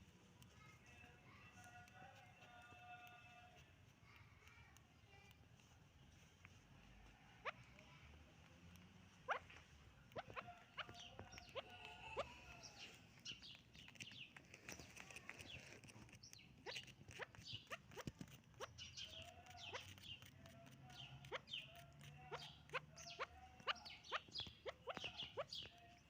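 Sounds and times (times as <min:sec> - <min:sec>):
faint wavering bird calls: 0:06.2 - 0:08.1, 0:09.0 - 0:15.6, 0:16.3 - 0:26.0
partridges calling sharp notes: 0:20.9 - 0:26.0.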